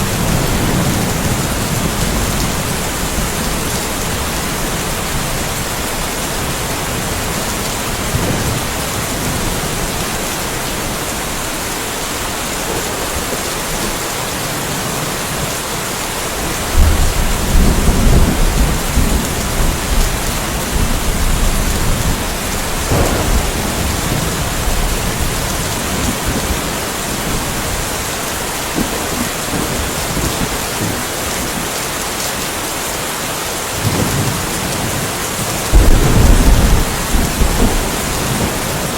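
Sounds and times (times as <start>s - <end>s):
thunder rumbling: 0.0s - 15.6s, 16.2s - 31.8s, 33.8s - 38.9s
steady rain falling: 0.0s - 38.9s
sharp thunder crack: 16.8s - 19.9s, 22.8s - 26.5s, 35.7s - 38.9s.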